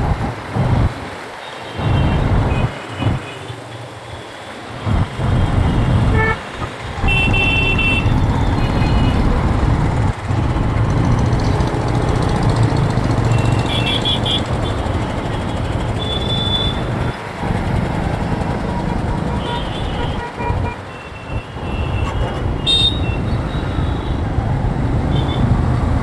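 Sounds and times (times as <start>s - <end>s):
motorbike engine and road rumble: 4.8s - 20.9s
vehicle horns tooting: 6.0s - 9.5s, 13.3s - 14.6s, 16.0s - 16.9s, 19.1s - 24.2s.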